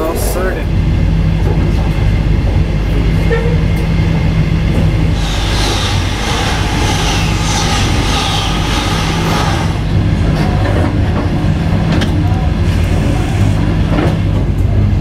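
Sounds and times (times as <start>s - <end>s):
train carriage rumble: 0.0s - 15.0s
passing train rushing hiss: 5.1s - 10.8s.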